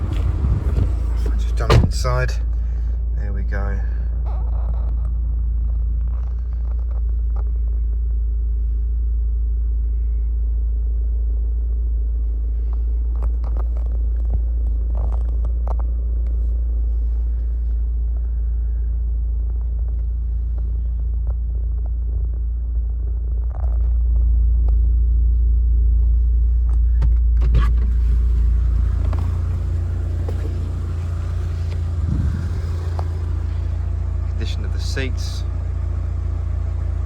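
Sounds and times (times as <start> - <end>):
car engine idling: 0.0 - 6.9, 25.6 - 37.0.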